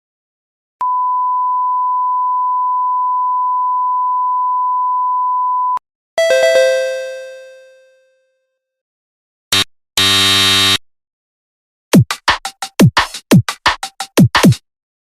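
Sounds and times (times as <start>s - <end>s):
steady pure beep: 0.8s - 5.8s
bell-like chime notes: 6.2s - 8.2s.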